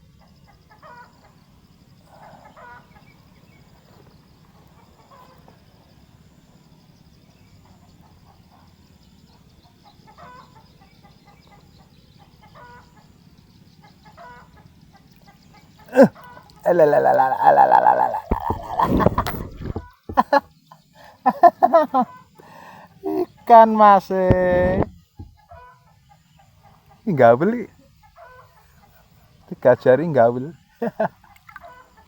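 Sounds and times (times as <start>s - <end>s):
faint chicken clucks: 0.0s - 29.6s, 30.4s - 32.0s
steady low hum: 22.9s - 25.6s.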